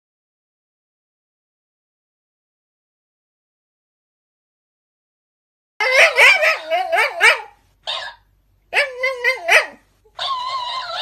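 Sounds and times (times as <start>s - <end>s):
dog whining and yelping: 5.8s - 11.0s.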